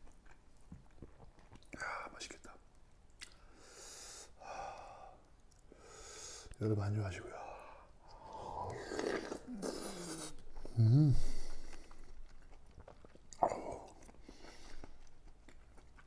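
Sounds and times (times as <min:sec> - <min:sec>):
man chewing food: 0:00.0 - 0:01.8, 0:02.7 - 0:03.6, 0:08.0 - 0:16.0
man humming mm: 0:08.5 - 0:11.8.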